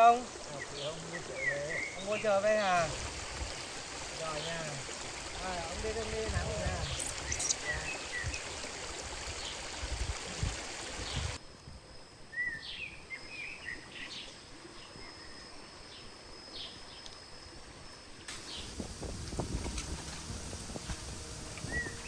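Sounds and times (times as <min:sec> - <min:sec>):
steady rushing hiss: 0:00.0 - 0:11.4, 0:18.3 - 0:22.0
high insect whine: 0:00.0 - 0:22.0
small birds chirping: 0:03.5 - 0:09.8, 0:18.3 - 0:22.0.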